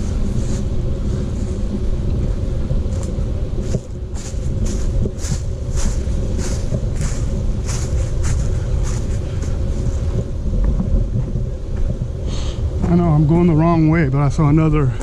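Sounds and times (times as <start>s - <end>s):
wind buffeting microphone: 0.0s - 15.0s
footsteps crunching on trail: 2.2s - 12.1s.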